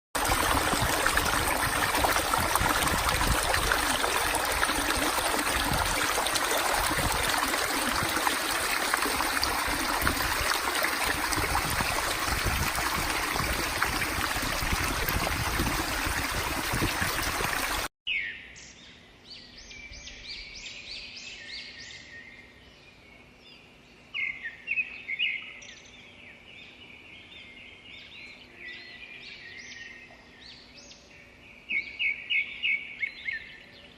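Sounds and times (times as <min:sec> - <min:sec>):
flowing river water: 0:00.2 - 0:17.9.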